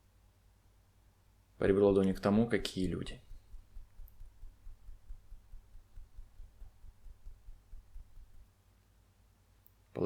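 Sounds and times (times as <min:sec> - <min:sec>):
fingertips tapping palm: 0:01.8 - 0:08.5.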